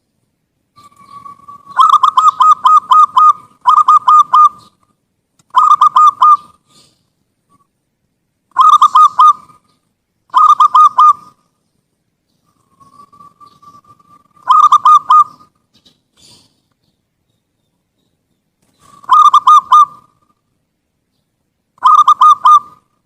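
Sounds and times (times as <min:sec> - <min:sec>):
dove cooing: 0:00.8 - 0:04.8, 0:05.5 - 0:07.6, 0:08.5 - 0:11.5, 0:12.4 - 0:16.6, 0:18.7 - 0:20.4, 0:21.8 - 0:22.9.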